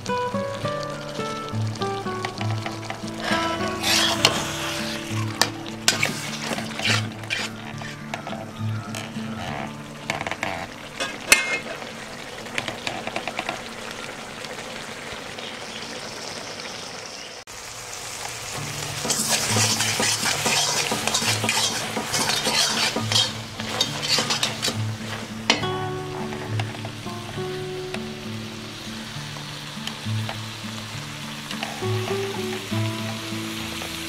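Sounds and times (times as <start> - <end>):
squid sizzling in a wok: 0.0 - 34.0
metal spatula scraping a pan: 2.8 - 11.9, 18.8 - 26.8, 31.6 - 31.9.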